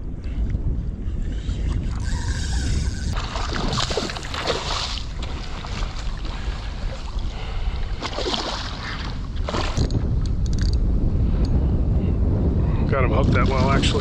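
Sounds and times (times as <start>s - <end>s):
wind buffeting microphone: 0.0s - 14.0s
water splashes: 3.1s - 9.9s.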